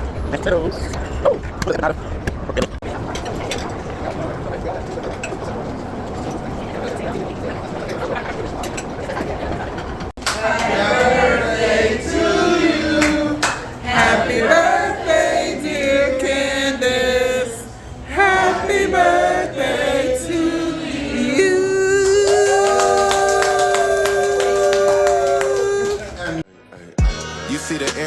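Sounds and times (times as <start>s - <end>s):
person singing: 10.4s - 26.0s.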